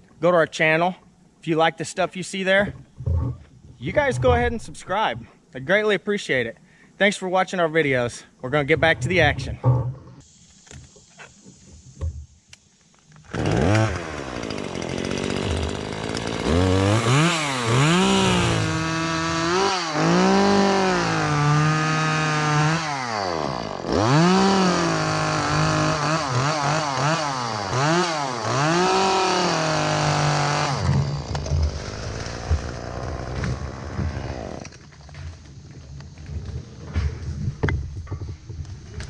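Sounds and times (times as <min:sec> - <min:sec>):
chainsaw revving and cutting wood: 0:13.2 - 0:34.8.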